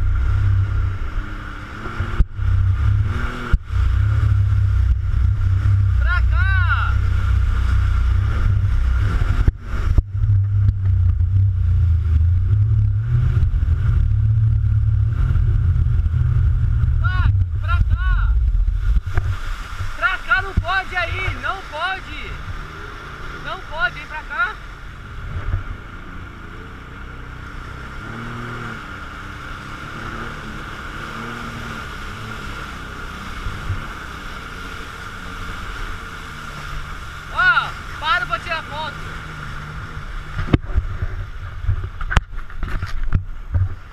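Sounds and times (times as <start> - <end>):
wind buffeting microphone: 0.0 - 21.5
jet ski running: 0.0 - 43.9.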